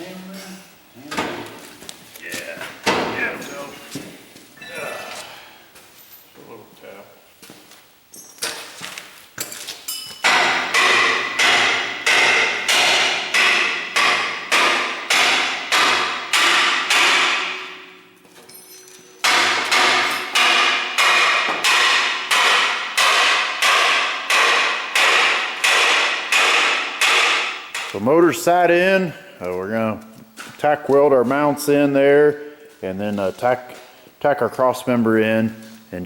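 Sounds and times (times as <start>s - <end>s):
hammer striking steel: 9.9s - 28.3s.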